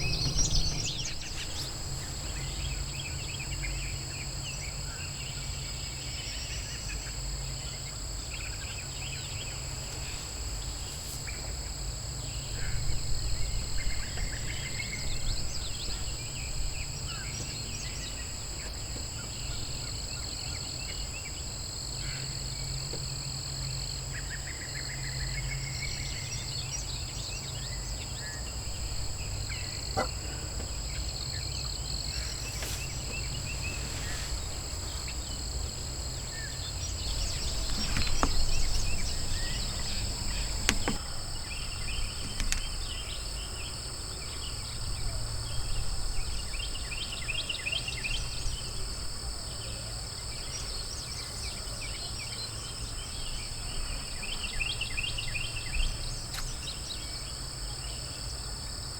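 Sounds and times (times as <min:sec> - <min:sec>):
low rumble: 0:00.0 - 0:03.3
birds calling: 0:00.0 - 0:03.9, 0:28.4 - 0:43.2
high insect hum: 0:00.0 - 0:58.9.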